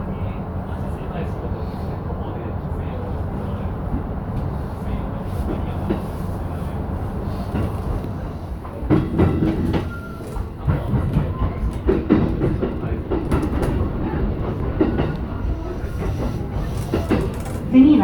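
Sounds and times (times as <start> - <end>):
train wheels rumbling on rails: 0.0 - 18.0
wheels clacking over track: 7.5 - 18.0.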